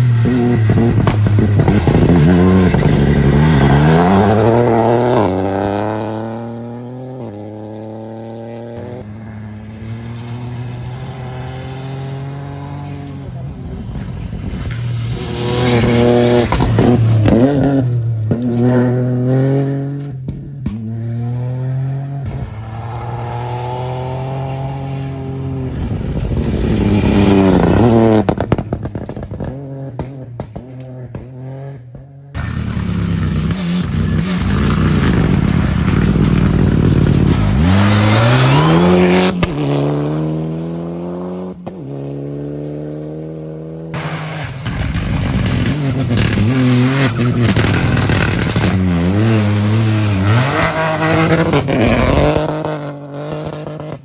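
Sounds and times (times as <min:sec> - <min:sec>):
rally car engines revving: 0:00.0 - 0:54.0
gravel spraying and stones clattering: 0:44.0 - 0:49.2.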